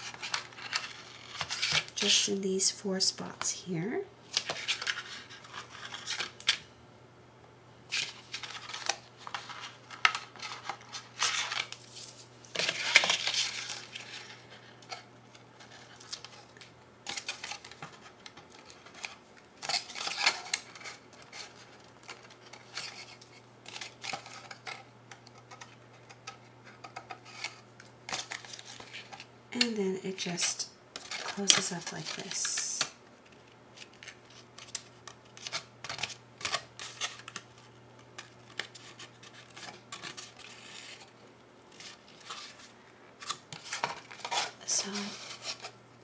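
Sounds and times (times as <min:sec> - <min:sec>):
faint steady hum: 0:00.0 - 0:46.0
paper rustling: 0:07.9 - 0:15.0.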